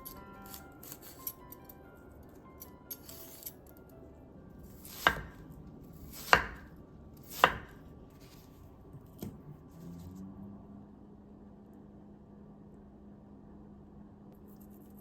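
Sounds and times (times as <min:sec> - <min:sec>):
knife chopping on cutting board: 0:04.7 - 0:05.4, 0:06.0 - 0:07.9
knife slicing: 0:04.7 - 0:05.4, 0:06.0 - 0:08.5.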